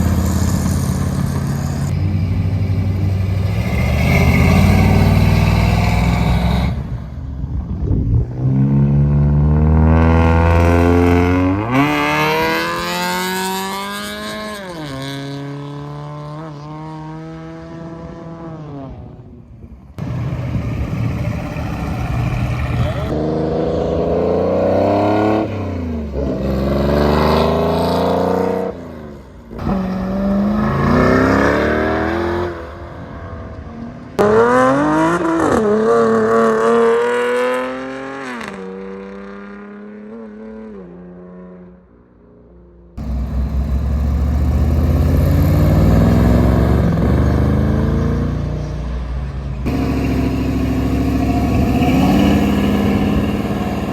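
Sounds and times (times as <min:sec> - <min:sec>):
car pulling away: 0:00.0 - 0:07.5, 0:20.0 - 0:32.8, 0:43.0 - 0:53.9
car engines revving: 0:00.0 - 0:19.3, 0:20.0 - 0:41.7, 0:43.0 - 0:53.9.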